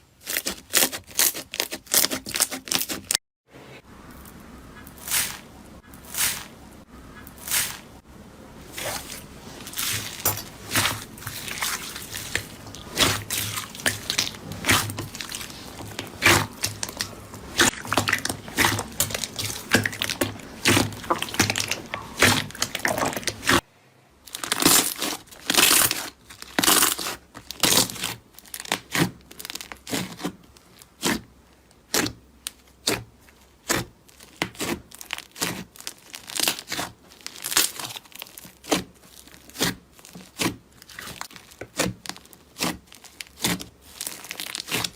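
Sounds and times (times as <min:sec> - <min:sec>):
slime squeezed by hand: 0:08.7 - 0:23.6.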